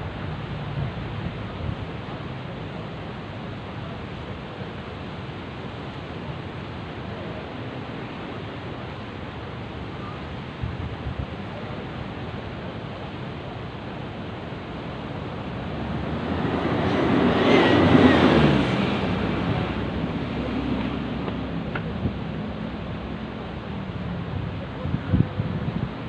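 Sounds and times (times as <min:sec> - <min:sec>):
sea waves washing in: 0:00.0 - 0:26.0
wind on microphone: 0:10.4 - 0:26.0.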